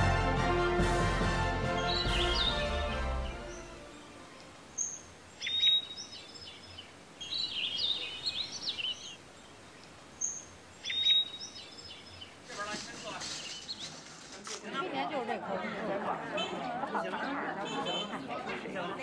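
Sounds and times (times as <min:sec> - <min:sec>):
music: 0:00.0 - 0:04.6
small birds chirping and whistling: 0:01.8 - 0:03.7, 0:04.8 - 0:09.2, 0:10.2 - 0:14.1.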